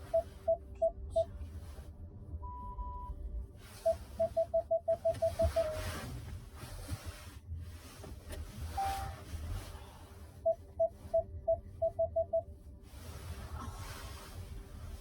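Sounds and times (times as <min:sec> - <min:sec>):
parking sensor beeps: 0:00.0 - 0:01.3, 0:02.4 - 0:03.2, 0:03.8 - 0:06.0, 0:08.7 - 0:09.2, 0:10.4 - 0:12.5
car warning chime: 0:03.8 - 0:05.9.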